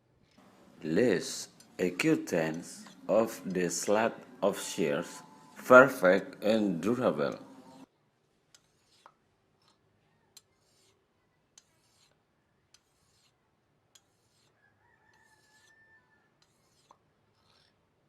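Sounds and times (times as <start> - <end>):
blade rubbing on whetstone: 1.2 - 7.9, 8.5 - 9.8, 10.4 - 11.0, 11.6 - 13.4, 14.0 - 17.8
distant rooster crowing: 14.6 - 16.4.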